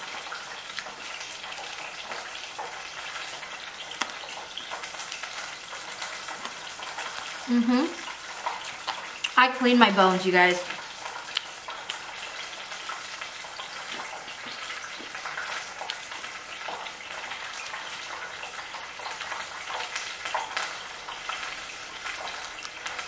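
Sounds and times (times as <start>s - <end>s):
crunchy chewing: 11.0s - 16.8s.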